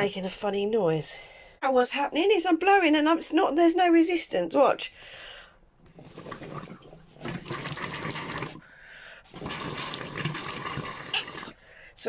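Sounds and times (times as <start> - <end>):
water and air gurgling through pipes: 5.8 - 11.8
person blowing into hose: 6.0 - 8.6, 9.3 - 11.6.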